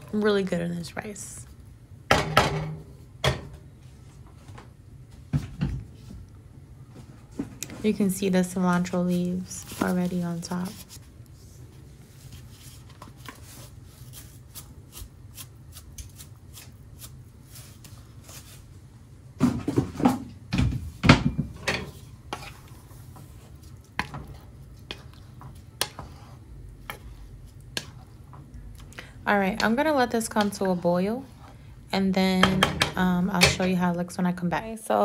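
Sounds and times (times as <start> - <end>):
steady low hum: 0.0 - 35.0
utensil scraping and knocking a pot: 21.4 - 28.5
rice cooking in water: 21.8 - 31.6.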